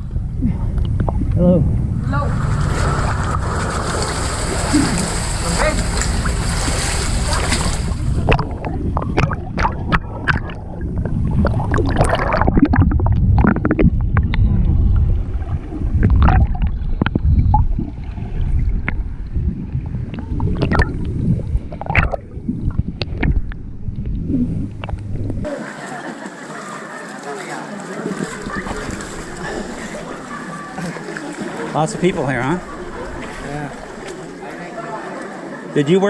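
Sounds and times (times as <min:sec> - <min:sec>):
low rumble: 0:00.0 - 0:25.5
water splashing: 0:00.6 - 0:35.7.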